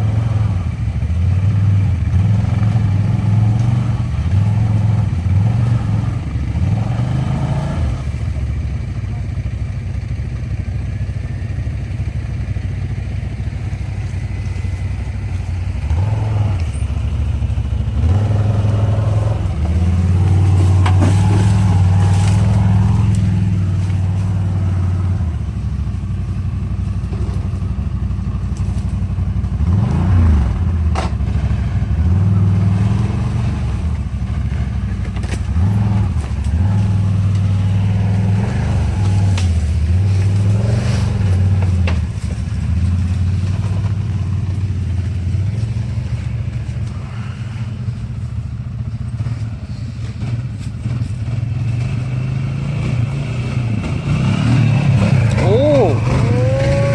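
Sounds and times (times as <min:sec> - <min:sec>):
vehicle engine revving: 0:00.0 - 0:56.9.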